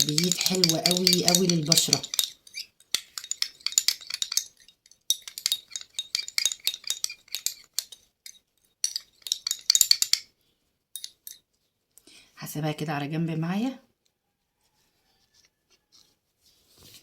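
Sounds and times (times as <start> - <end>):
spoon clinking against dish: 0.0 - 4.5.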